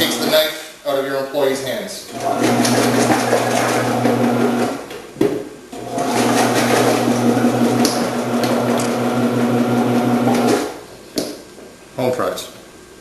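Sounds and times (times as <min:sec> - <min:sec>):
electric motor humming: 0:00.0 - 0:00.4, 0:02.1 - 0:04.9, 0:05.8 - 0:10.7.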